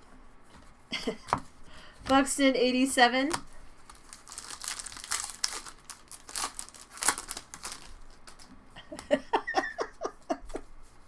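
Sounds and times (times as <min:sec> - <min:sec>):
foil wrappers crinkling and tearing: 0:03.3 - 0:08.6.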